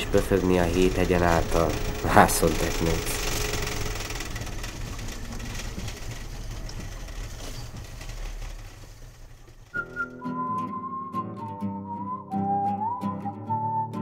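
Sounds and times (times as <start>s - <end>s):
vehicle engine rumbling: 0.0s - 10.5s.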